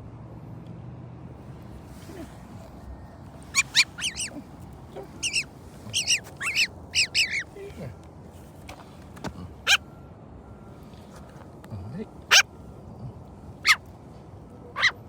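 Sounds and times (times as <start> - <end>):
bird giving short sharp calls: 3.5 - 4.4, 5.2 - 7.5, 14.8 - 15.0.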